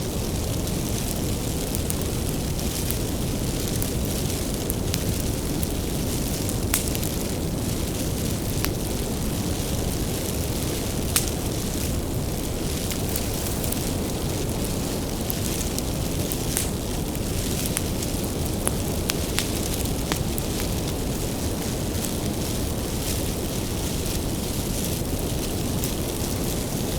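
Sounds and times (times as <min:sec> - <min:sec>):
burning wood crackling pops: 0:00.0 - 0:26.9
fire flames rushing: 0:00.0 - 0:26.9.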